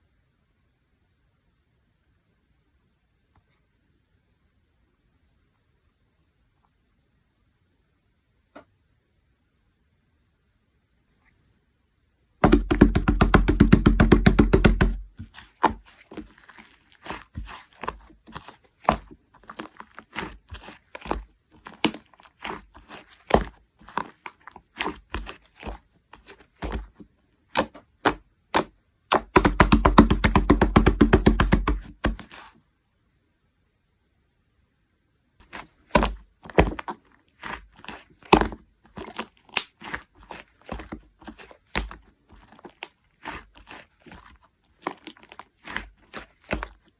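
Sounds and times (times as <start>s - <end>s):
slime crackling and popping: 12.4s - 32.5s, 35.4s - 46.9s.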